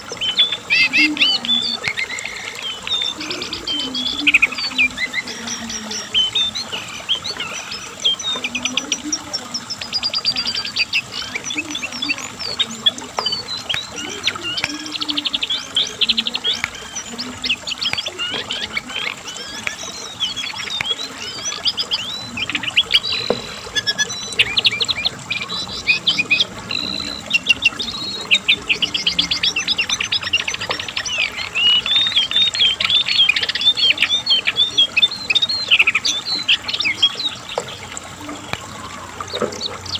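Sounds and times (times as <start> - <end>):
bird singing rapid trills: 0.0 - 39.9.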